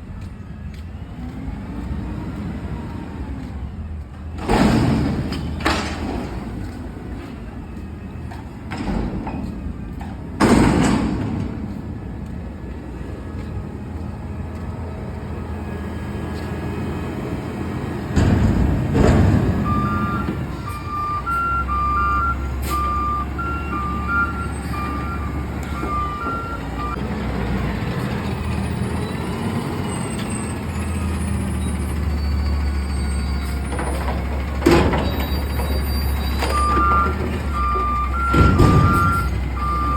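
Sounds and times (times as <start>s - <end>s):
garbage truck engine drone: 0.0s - 39.9s
loud clattering bang: 4.4s - 6.6s, 10.4s - 11.8s, 18.1s - 20.5s.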